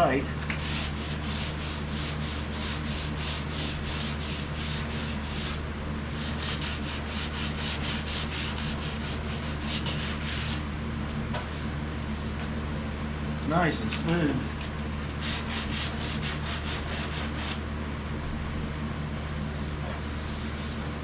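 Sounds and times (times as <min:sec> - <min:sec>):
sandpaper sanding metal panel: 0:00.6 - 0:05.6, 0:06.2 - 0:10.6, 0:11.4 - 0:13.1, 0:15.2 - 0:17.6, 0:18.6 - 0:21.0.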